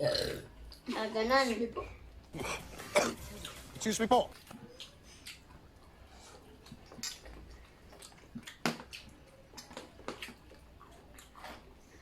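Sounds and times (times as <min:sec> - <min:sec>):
chewing with wet smacks: 0:03.2 - 0:12.0.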